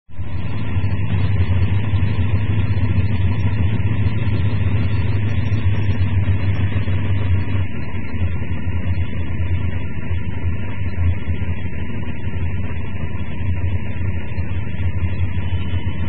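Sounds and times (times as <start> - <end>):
race car engine idling: 0.0 - 16.0.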